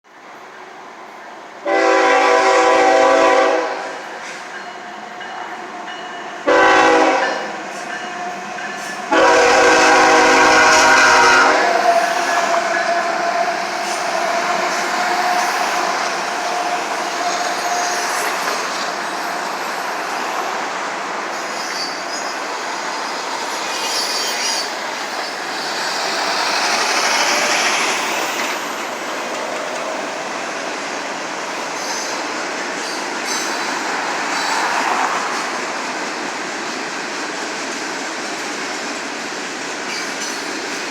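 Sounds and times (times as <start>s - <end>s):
train wheels clattering on rail: 4.1s - 30.8s, 31.5s - 40.9s
high wheel squeal: 11.8s - 20.2s, 21.2s - 30.2s, 31.7s - 34.8s.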